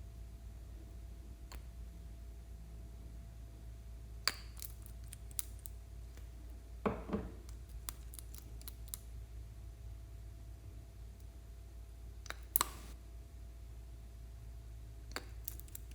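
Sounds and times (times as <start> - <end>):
sharp small clicks: 4.3 - 6.3, 7.5 - 9.1, 12.2 - 13.0, 15.1 - 15.9.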